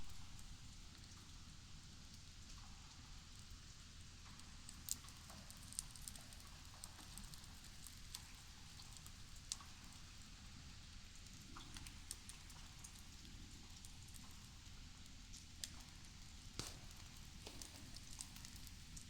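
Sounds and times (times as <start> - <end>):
campfire crackling and popping: 15.6 - 19.0.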